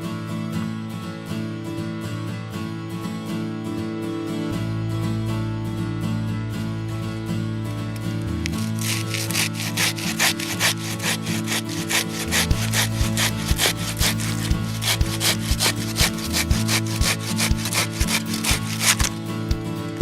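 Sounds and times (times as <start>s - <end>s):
music with sustained chords: 0.0s - 20.0s
hand saw cutting wood: 8.2s - 19.2s.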